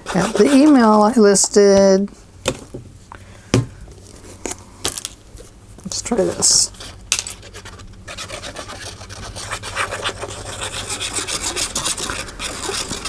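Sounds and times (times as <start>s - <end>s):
hand scraping against paper: 0.0s - 1.4s, 6.1s - 13.0s.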